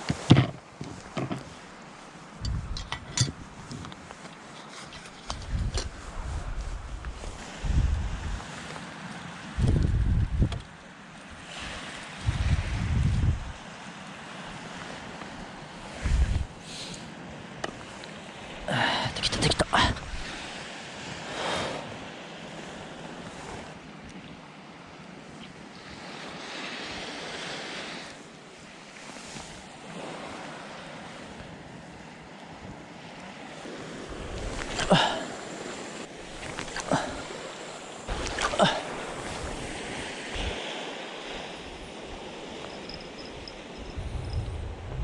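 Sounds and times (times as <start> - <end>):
waves washing onto beach: 0.0 - 45.0
wind buffeting microphone: 2.4 - 4.0, 5.2 - 8.5, 9.5 - 10.7, 11.6 - 13.6, 14.8 - 16.6, 33.7 - 45.0.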